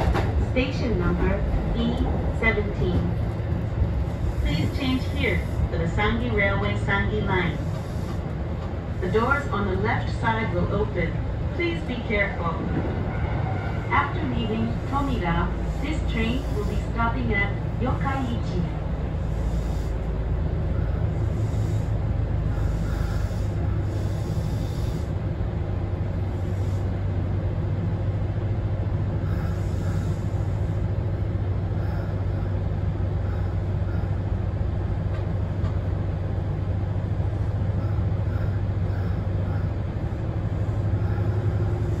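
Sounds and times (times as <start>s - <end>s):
train rumble and hum: 0.0s - 42.0s.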